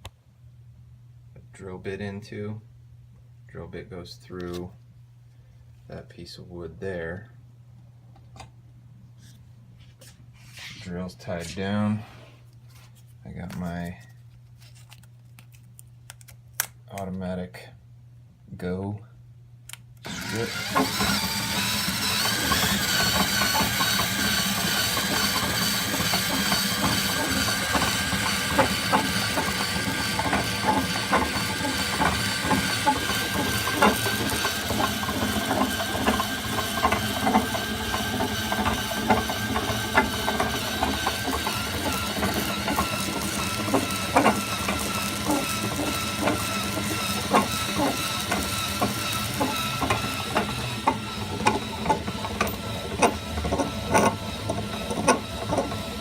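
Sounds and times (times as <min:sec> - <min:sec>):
electric drill whining: 0:20.0 - 0:56.0.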